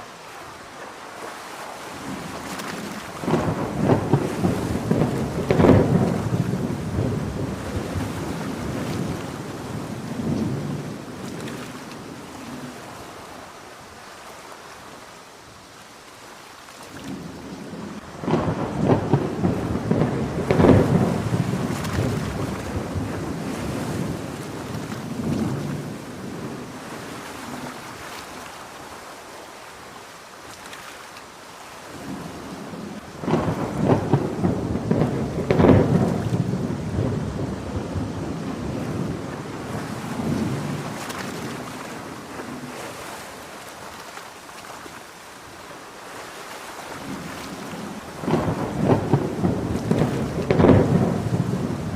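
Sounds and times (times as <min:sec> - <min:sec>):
heavy rain falling: 0:00.0 - 0:51.9
rolling thunder with sharp cracks: 0:03.2 - 0:11.3, 0:18.2 - 0:26.6, 0:33.2 - 0:41.4, 0:48.1 - 0:51.9.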